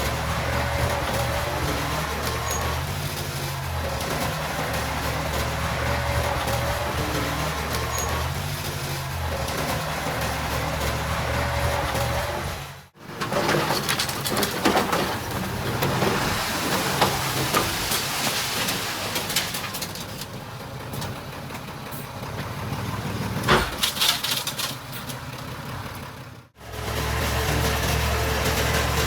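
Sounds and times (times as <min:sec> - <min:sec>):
diesel engine running: 0:00.0 - 0:29.0
machinery clanks and knocks: 0:23.4 - 0:25.5.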